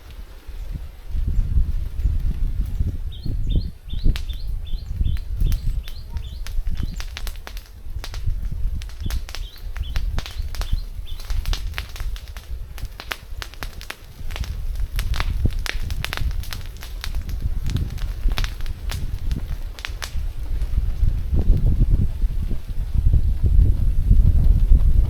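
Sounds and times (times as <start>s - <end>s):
sharp clicks and crackles: 4.1s - 21.7s.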